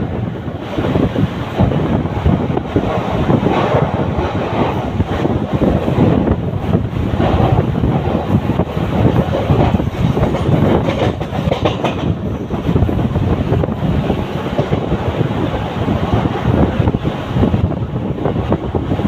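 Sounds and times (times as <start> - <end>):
electric train rumbling: 0.0 - 19.0
wheel clacks over rail joints: 7.2 - 12.9.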